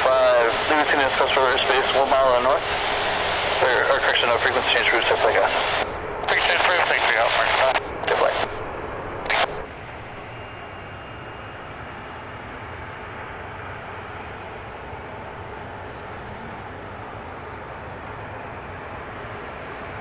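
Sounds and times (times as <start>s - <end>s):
burst of radio sound: 0.0s - 9.7s
jet aircraft engine noise: 0.0s - 20.0s.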